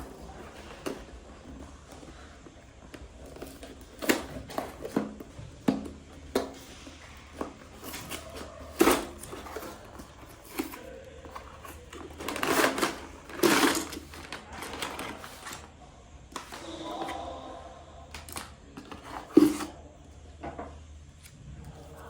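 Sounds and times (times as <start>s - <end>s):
plastic pieces rattling: 7.8s - 15.7s.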